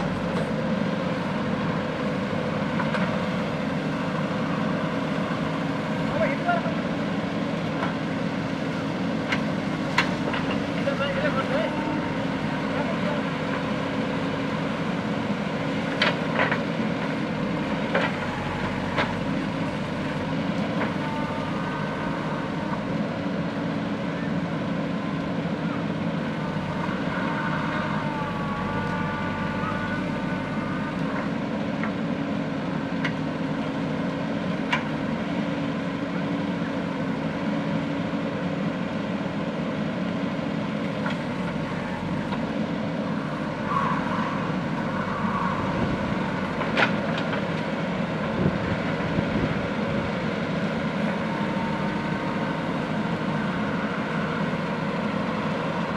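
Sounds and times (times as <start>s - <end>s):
diesel engine running: 0.0s - 55.9s
short whine: 41.6s - 48.6s.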